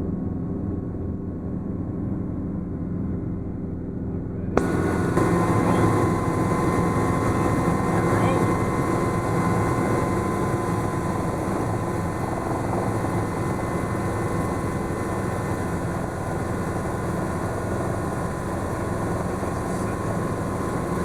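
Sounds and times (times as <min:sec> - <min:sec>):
helicopter engine and rotor drone: 0:00.0 - 0:21.0.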